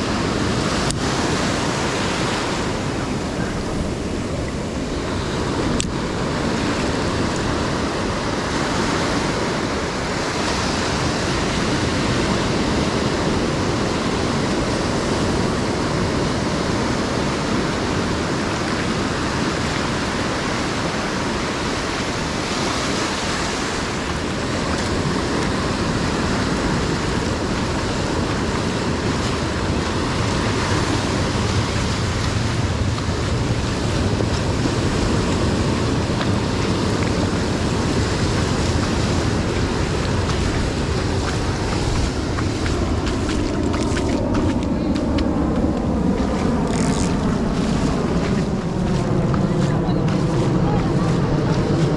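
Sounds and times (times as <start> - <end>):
ocean waves breaking on beach: 0.0 - 51.9.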